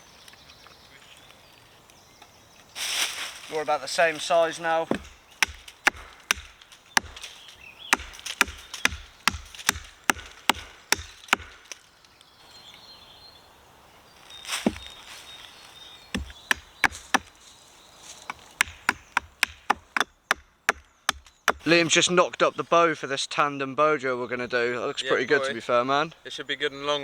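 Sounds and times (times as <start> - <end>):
blade chopping wood: 4.8 - 11.8, 14.6 - 15.0, 16.2 - 17.4, 18.1 - 21.8.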